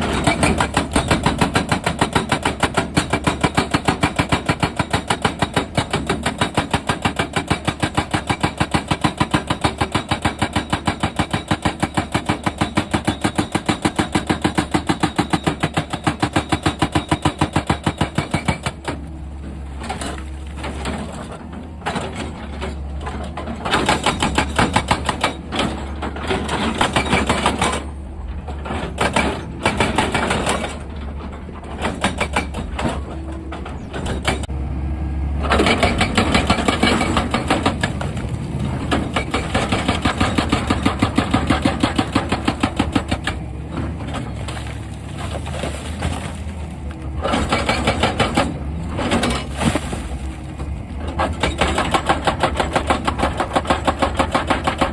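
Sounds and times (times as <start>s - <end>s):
hydraulic rock breaker hammering: 0.0s - 19.1s, 23.1s - 31.0s, 31.6s - 34.5s, 35.4s - 46.5s, 47.2s - 54.9s
low diesel engine drone: 18.6s - 54.9s.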